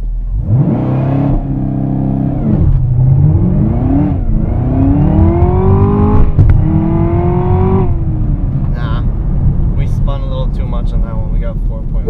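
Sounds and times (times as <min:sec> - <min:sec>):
car engine revving hard: 0:00.4 - 0:08.6.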